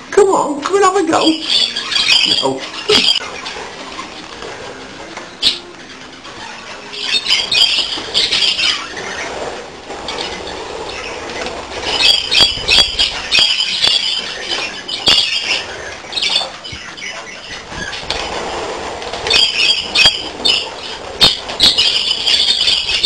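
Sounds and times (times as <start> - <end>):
budgerigars chirping and squawking: 1.0 - 23.0.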